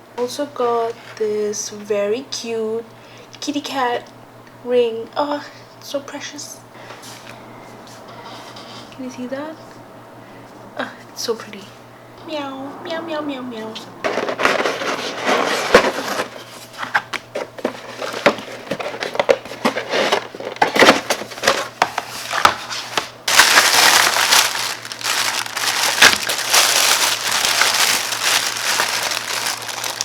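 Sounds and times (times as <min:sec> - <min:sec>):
packaging crinkling: 0:14.1 - 0:30.0.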